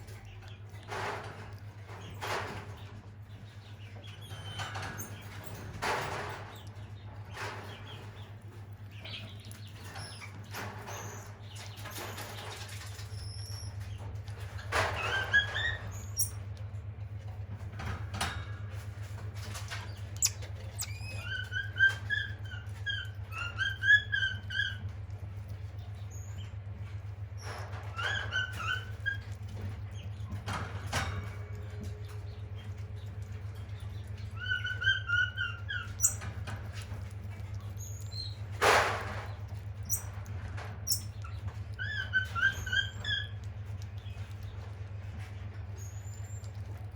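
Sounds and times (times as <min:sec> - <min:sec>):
steady low hum: 0:00.0 - 0:46.9
small animals chirping: 0:19.9 - 0:24.8, 0:31.5 - 0:38.5, 0:39.5 - 0:40.2, 0:40.8 - 0:44.7.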